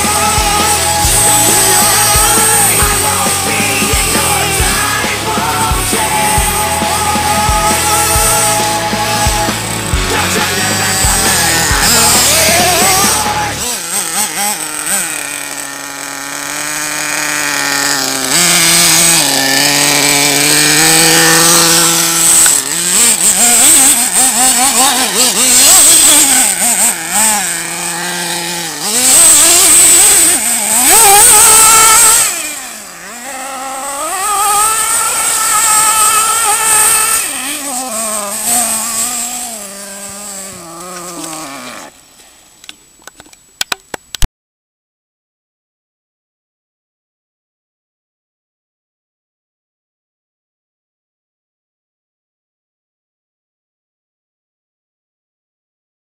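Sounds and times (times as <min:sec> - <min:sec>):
model car nitro engine revving: 0:00.0 - 0:42.1
steady high whine: 0:00.0 - 0:43.3.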